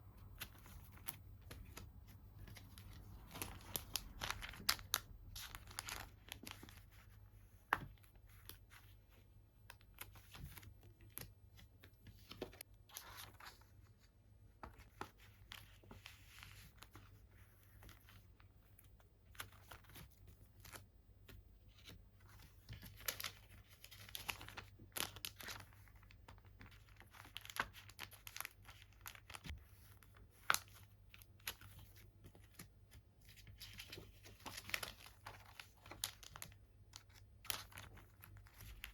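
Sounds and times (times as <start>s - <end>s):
plastic packaging crinkling and tearing: 2.6s - 6.8s, 23.0s - 29.5s, 33.5s - 38.9s.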